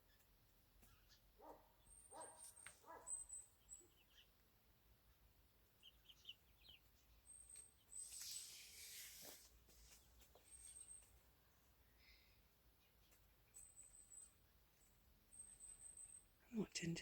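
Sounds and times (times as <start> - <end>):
young chickens chirping: 2.0 - 11.1
rustling: 7.5 - 11.2.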